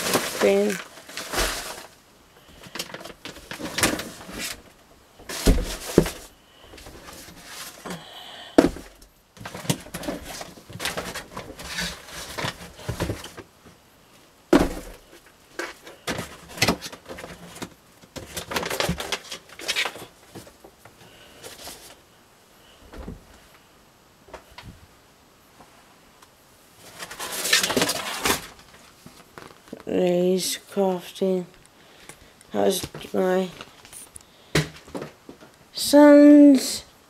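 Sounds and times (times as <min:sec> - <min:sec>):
objects knocking and thumping: 0:00.0 - 0:01.9, 0:02.6 - 0:08.0, 0:08.6 - 0:13.8, 0:14.5 - 0:21.9, 0:34.5 - 0:35.5
rustling and clatter: 0:00.0 - 0:08.0, 0:08.6 - 0:13.8, 0:14.5 - 0:22.0, 0:26.8 - 0:29.9.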